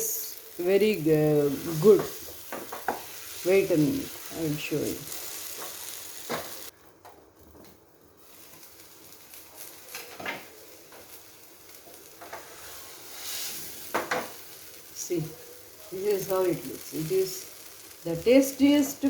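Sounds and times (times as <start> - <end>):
light sizzle: 0.0 - 19.0.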